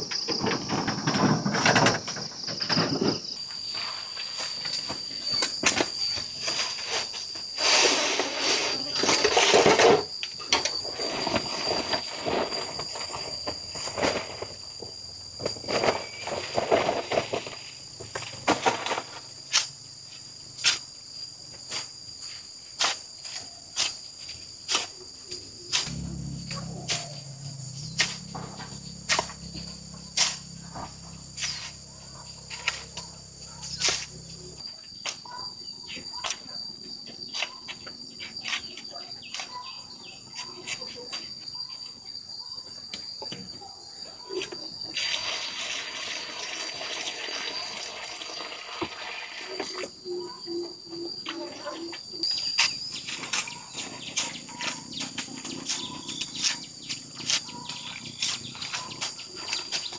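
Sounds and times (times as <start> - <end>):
insects shrilling: 15.2 - 34.7, 51.8 - 59.9
low hum: 25.4 - 34.6.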